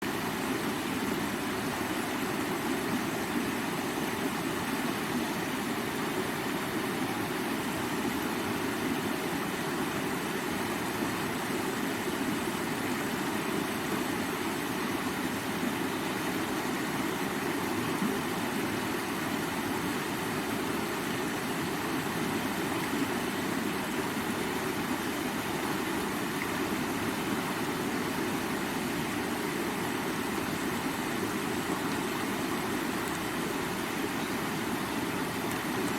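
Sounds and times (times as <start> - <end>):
river water rushing: 0.0 - 35.9.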